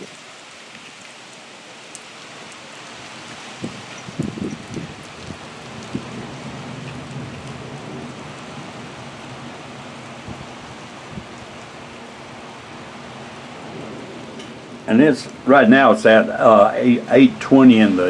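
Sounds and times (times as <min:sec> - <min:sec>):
strong gusty wind: 0:02.2 - 0:18.0.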